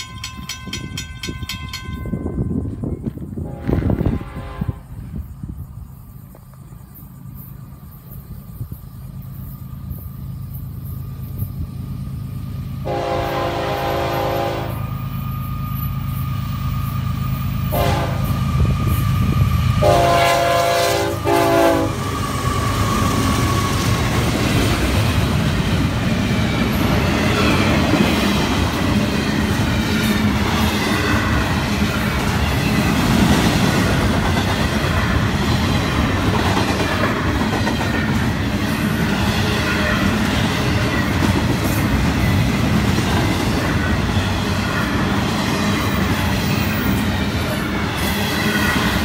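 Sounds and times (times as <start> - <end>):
freight train rumble: 0.0 - 49.0
locomotive horn blasts: 3.4 - 5.0, 12.8 - 14.9, 17.7 - 18.4, 19.8 - 22.0.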